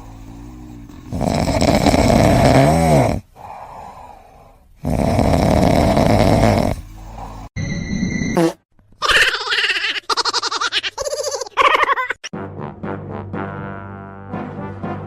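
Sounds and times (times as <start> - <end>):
loud rough snoring: 0.0 - 4.0, 4.8 - 7.6
squeak in snore: 7.6 - 8.6.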